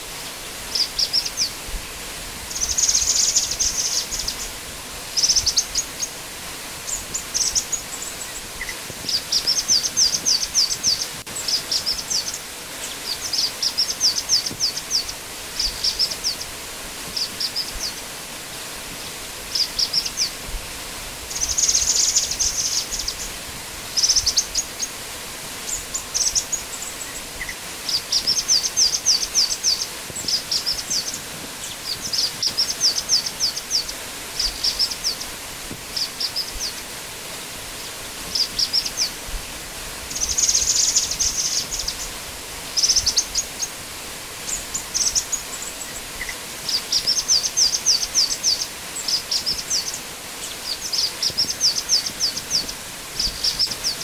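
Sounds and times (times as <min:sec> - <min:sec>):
bird chattering song: 0:00.7 - 0:01.6, 0:02.5 - 0:04.5, 0:06.9 - 0:16.5, 0:21.3 - 0:23.3, 0:25.7 - 0:35.3, 0:40.1 - 0:42.1, 0:44.5 - 0:54.0.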